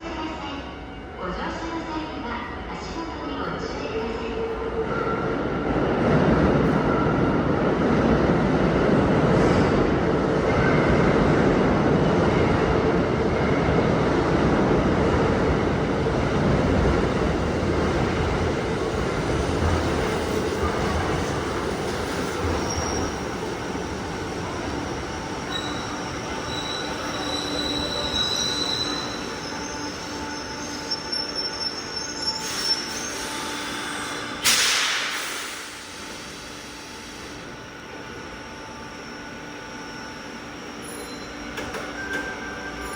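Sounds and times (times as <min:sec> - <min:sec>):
train wheels rumbling on rails: 0:01.4 - 0:31.5
wheel and brake squeals: 0:25.5 - 0:34.2.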